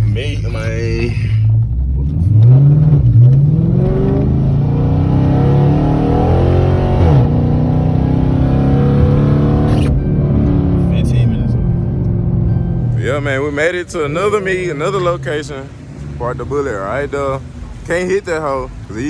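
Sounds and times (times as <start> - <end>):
car engine accelerating through gears: 1.4 - 19.0.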